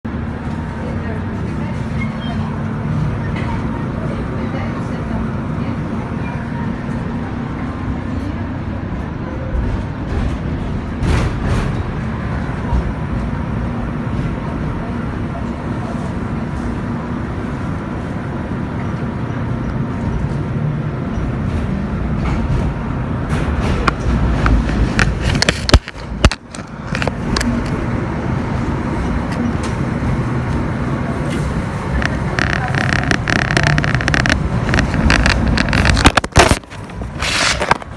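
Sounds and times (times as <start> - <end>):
tram rumbling along track: 0.0 - 37.9
wheels clicking over track joints: 29.3 - 37.9.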